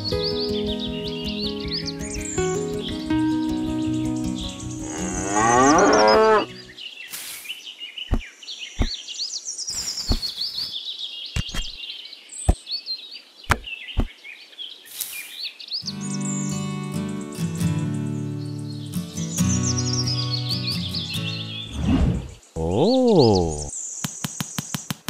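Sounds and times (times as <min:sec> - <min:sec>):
background music: 0:00.0 - 0:06.8
birds chirping: 0:00.0 - 0:24.9
cow mooing: 0:04.9 - 0:06.5
wooden sticks tapped into sand: 0:24.0 - 0:25.0.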